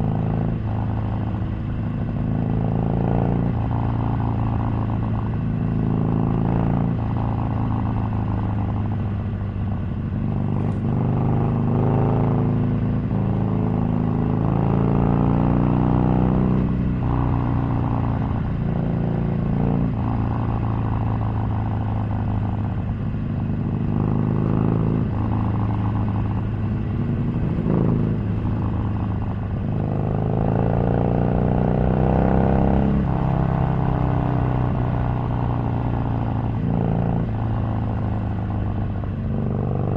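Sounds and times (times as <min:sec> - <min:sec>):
motorcycle engine accelerating: 0:10.2 - 0:39.9.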